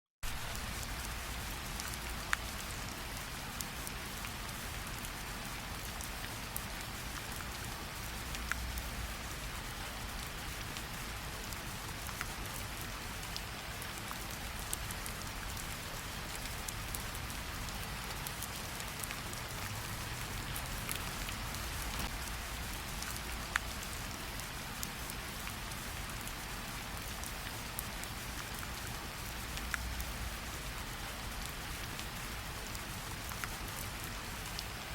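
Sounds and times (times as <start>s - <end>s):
steady rain falling: 0.2s - 34.9s
raindrops landing close by: 13.3s - 26.4s.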